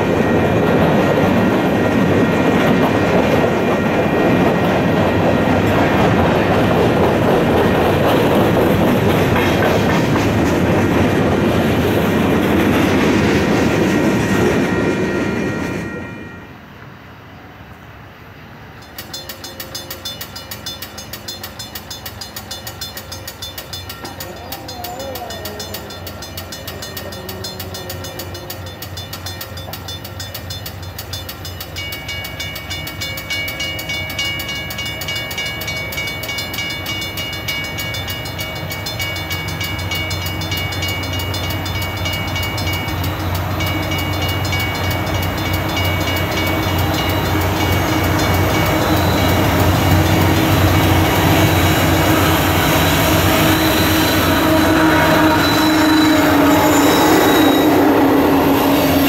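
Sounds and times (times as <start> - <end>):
diesel locomotive rumbling: 0.0 - 59.0
train wheels squealing: 18.8 - 59.0.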